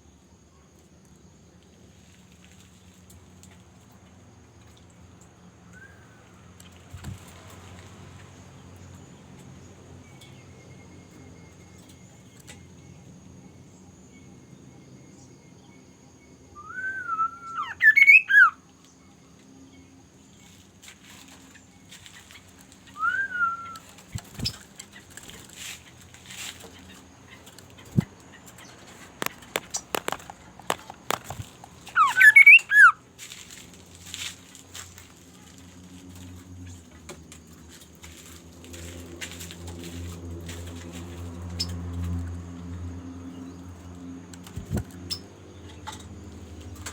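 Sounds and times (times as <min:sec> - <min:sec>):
low steady background hum: 0:00.0 - 0:46.9
bird whistled calls: 0:16.6 - 0:18.6, 0:22.9 - 0:24.6, 0:31.3 - 0:33.0.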